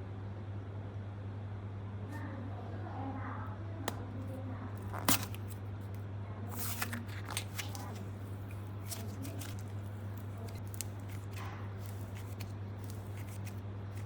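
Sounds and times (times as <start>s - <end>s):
slime clicking and crackling: 6.6s - 14.0s.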